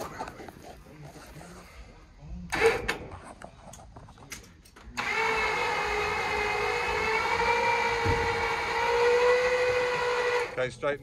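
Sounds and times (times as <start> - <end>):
electric winch motor whining: 5.0 - 10.6.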